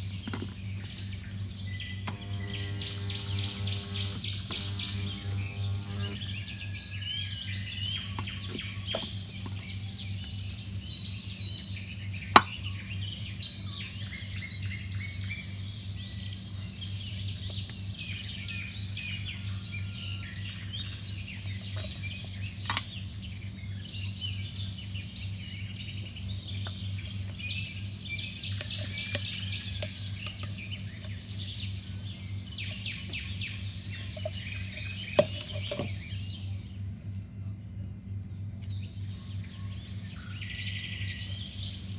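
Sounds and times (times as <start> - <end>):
steady low hum: 0.0 - 12.3
small birds chirping: 0.0 - 36.8, 38.4 - 41.9
sharp clicks: 2.1 - 6.2.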